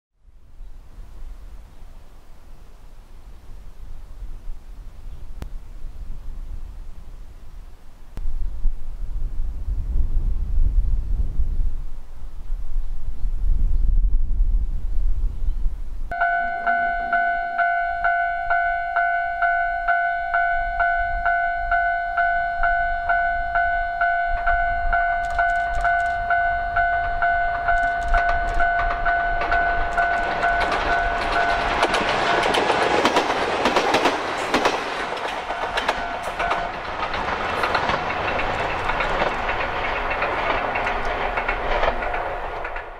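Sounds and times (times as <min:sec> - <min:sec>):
level crossing bell dinging: 0:16.1 - 0:31.8
electric train passing: 0:16.1 - 0:42.9.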